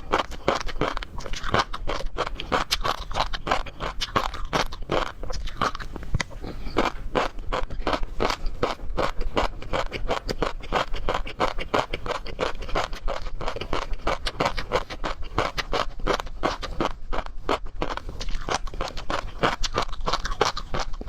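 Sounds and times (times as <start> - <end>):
crunching while eating shrimp: 0.0 - 21.0.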